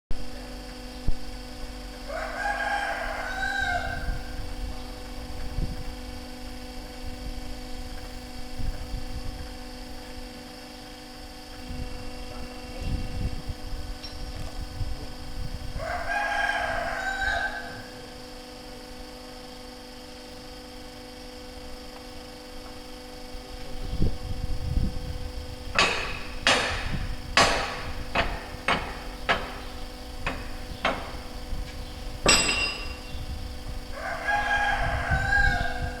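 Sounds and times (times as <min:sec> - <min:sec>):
steady hum: 0:00.1 - 0:36.0
long pitched call: 0:02.0 - 0:04.9, 0:15.8 - 0:18.2, 0:33.8 - 0:36.0
hammer striking metal: 0:25.8 - 0:31.3, 0:32.2 - 0:33.0.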